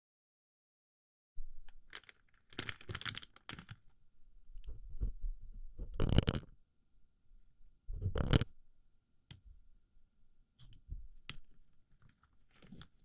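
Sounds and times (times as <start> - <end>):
plastic pellets crackling on microphone: 1.7 - 3.8, 5.8 - 6.5, 8.0 - 8.5.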